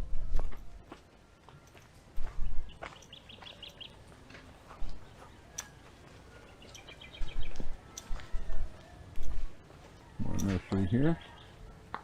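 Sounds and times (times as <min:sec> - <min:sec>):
small bird chirping: 0:02.4 - 0:04.1, 0:04.8 - 0:08.6.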